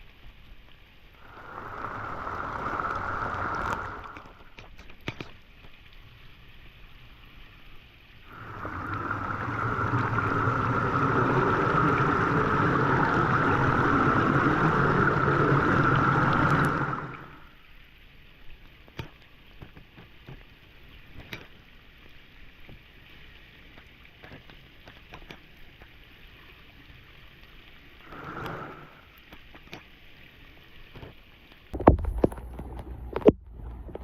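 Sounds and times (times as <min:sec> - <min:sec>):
water hissing: 0:01.1 - 0:05.0, 0:08.2 - 0:17.7, 0:27.7 - 0:29.8.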